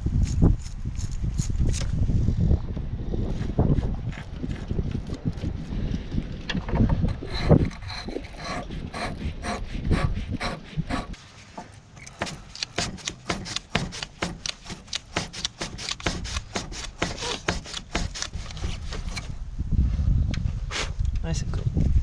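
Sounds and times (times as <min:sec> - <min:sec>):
brush scrubbing metal: 0:07.2 - 0:19.2.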